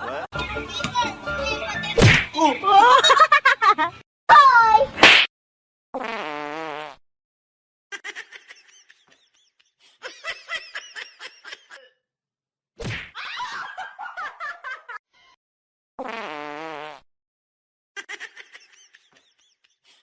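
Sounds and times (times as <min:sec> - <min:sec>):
laughter in pulsing bursts: 0:02.6 - 0:04.0.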